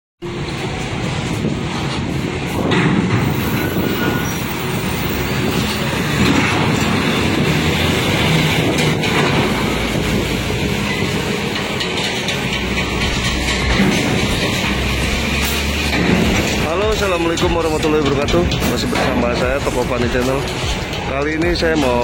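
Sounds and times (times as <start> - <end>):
wind buffeting microphone: 0.4 - 15.3.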